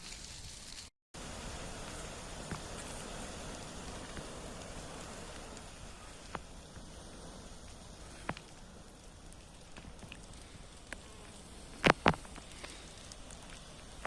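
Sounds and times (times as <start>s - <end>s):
fire hissing and crackling: 0.0s - 14.0s
loud sharp pops: 9.3s - 14.0s.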